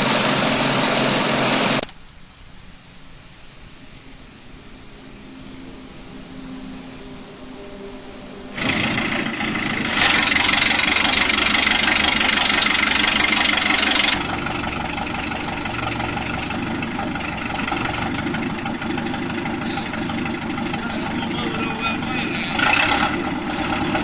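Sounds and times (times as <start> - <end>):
engine starting and revving: 0.0 - 1.8, 8.6 - 24.0.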